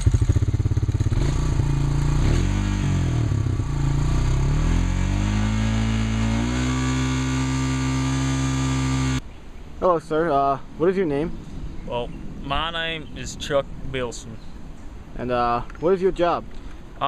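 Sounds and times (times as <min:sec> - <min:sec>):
chainsaw engine revving: 0:00.0 - 0:09.2.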